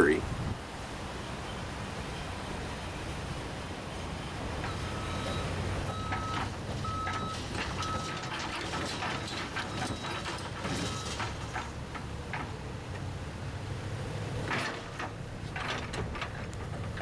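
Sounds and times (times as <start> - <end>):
engine running: 1.1 - 17.0
reversing alarm beeping: 4.6 - 8.4, 9.0 - 11.3
clanks and knocks: 4.6 - 13.0, 14.5 - 17.0.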